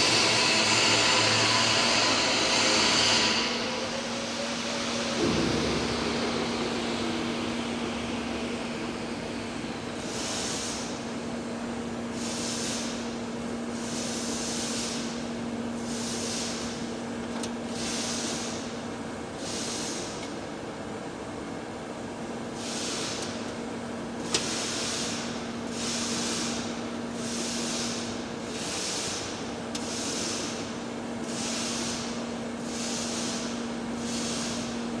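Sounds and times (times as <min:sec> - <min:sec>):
constant hum: 0:00.0 - 0:12.2.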